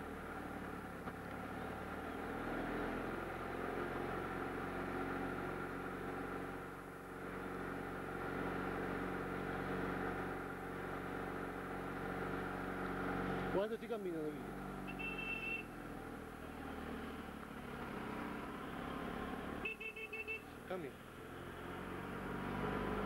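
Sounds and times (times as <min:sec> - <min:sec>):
small car engine humming: 0:00.0 - 0:23.0.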